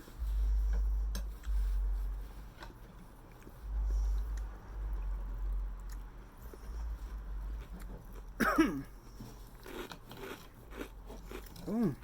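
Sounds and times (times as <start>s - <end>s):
chewing and mouth noises: 2.6s - 8.4s, 9.0s - 12.0s.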